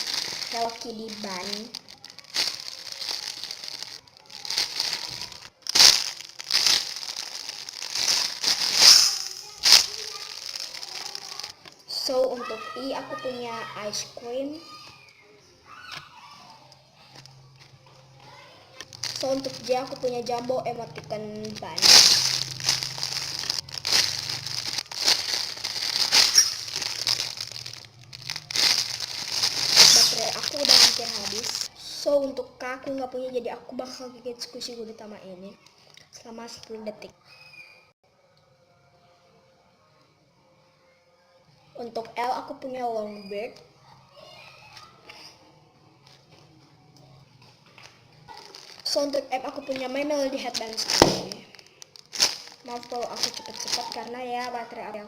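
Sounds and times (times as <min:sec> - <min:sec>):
squishy toy crinkling: 0:00.0 - 0:11.8, 0:15.9 - 0:31.7, 0:48.3 - 0:54.7.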